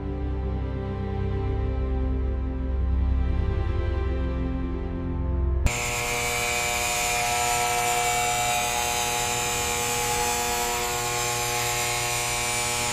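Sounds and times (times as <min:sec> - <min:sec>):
small motor buzzing: 0:05.7 - 0:12.9.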